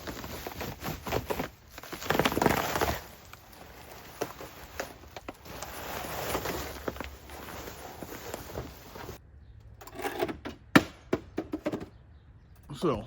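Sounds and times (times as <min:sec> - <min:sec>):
car cover rustling: 0:00.0 - 0:09.2
footsteps: 0:00.0 - 0:09.2.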